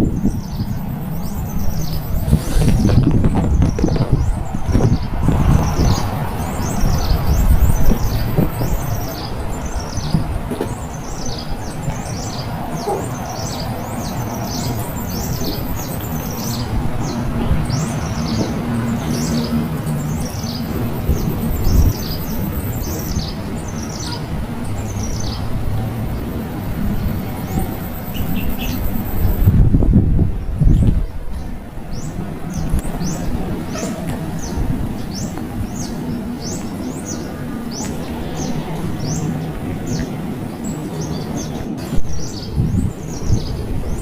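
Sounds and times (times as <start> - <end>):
steady low rumble: 0.0 - 44.0
small bird chirping: 27.4 - 29.4.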